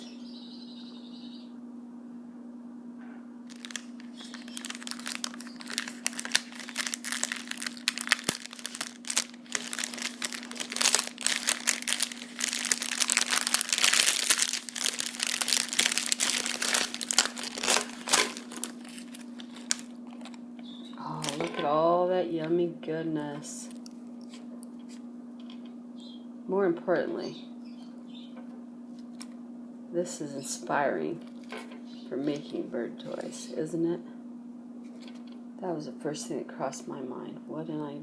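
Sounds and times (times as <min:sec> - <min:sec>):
plastic wrapping crinkling: 0:03.5 - 0:21.5.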